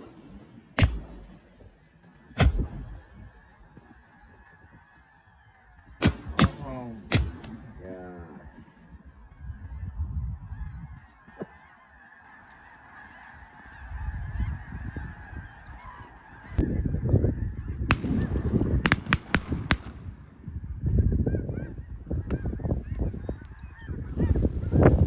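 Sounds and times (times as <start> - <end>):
shotgun shots: 0.0 - 1.8, 2.4 - 3.5, 6.0 - 8.0, 17.9 - 20.2
flock of geese calling: 0.0 - 19.0, 20.4 - 25.0
low rumble: 2.4 - 3.4.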